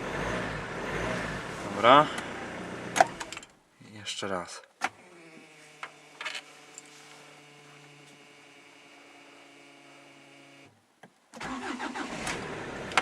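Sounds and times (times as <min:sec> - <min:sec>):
diesel engine starting: 0:00.0 - 0:03.5, 0:11.4 - 0:13.0.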